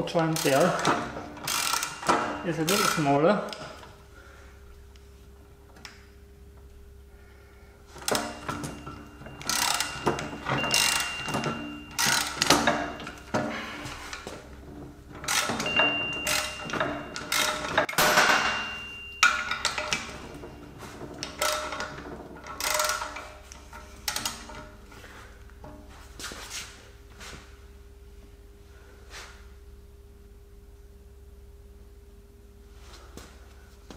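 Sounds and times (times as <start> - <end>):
ratchet wrench clicking: 0.4 - 3.6, 9.4 - 13.2, 15.2 - 17.9, 22.6 - 23.2
faint metallic ringing: 0.5 - 4.6, 8.0 - 26.1.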